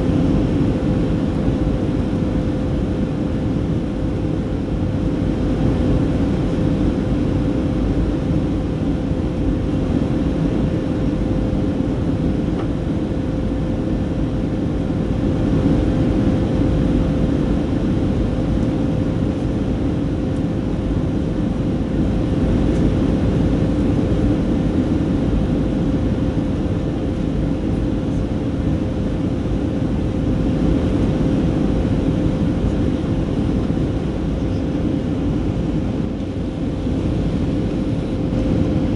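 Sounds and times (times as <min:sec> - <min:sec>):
jet engine drone and airflow: 0:00.0 - 0:38.9
steady hum: 0:00.0 - 0:38.9.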